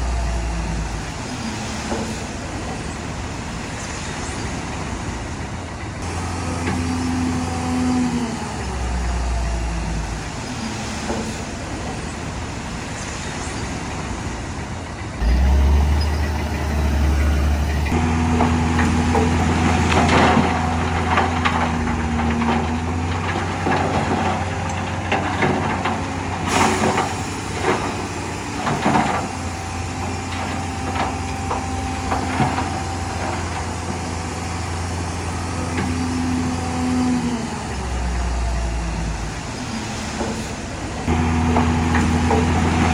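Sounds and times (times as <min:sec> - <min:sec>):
heavy diesel machinery running: 0:00.0 - 0:42.9
metal clanks and knocks: 0:15.2 - 0:34.2, 0:41.0 - 0:42.9.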